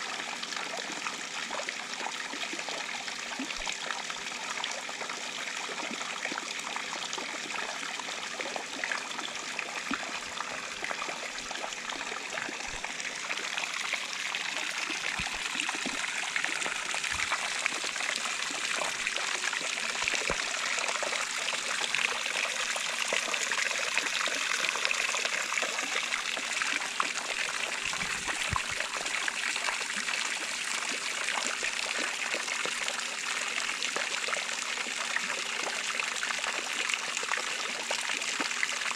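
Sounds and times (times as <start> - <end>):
water falling and splashing: 13.7 - 20.7, 27.8 - 29.2.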